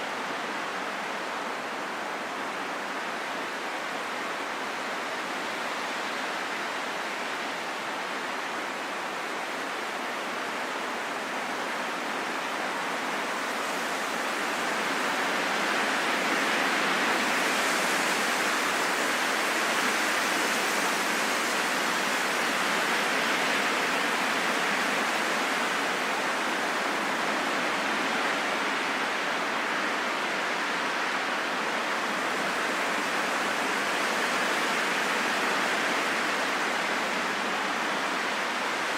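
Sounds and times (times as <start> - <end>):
rain falling in forest: 0.0 - 38.9.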